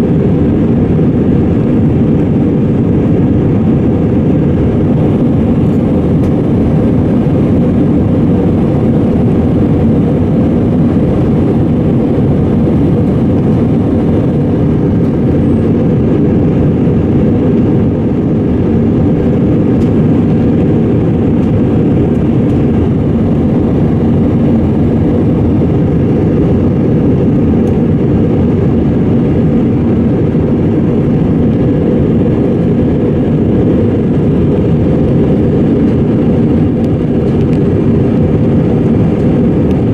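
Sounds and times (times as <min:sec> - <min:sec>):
aircraft engine rumble in cabin: 0:00.0 - 0:39.9.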